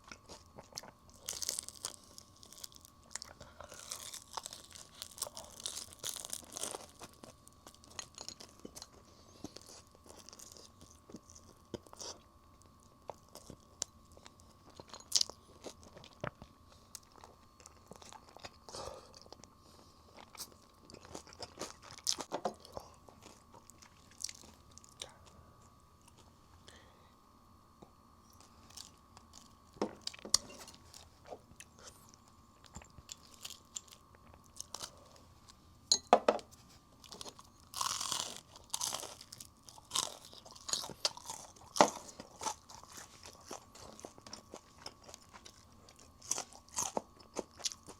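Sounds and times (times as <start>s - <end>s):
crunching fried chicken: 0.0s - 19.5s, 20.1s - 25.0s, 28.7s - 35.3s, 37.0s - 47.9s
chewing: 37.0s - 47.9s.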